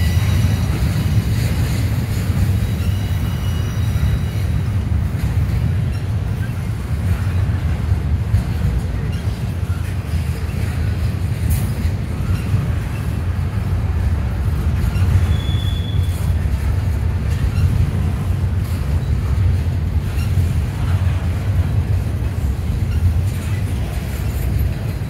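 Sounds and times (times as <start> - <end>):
high wheel squeal: 0.0 - 1.1, 2.4 - 4.7, 14.8 - 16.4
train wheels rumbling on rail: 0.0 - 25.0.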